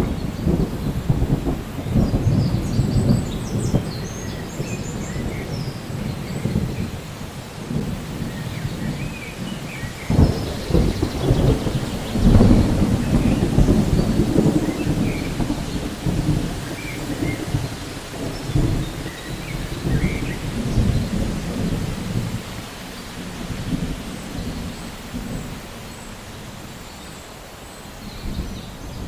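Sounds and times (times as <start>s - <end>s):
rolling thunder: 0.0s - 22.6s
steady rain: 0.0s - 29.0s.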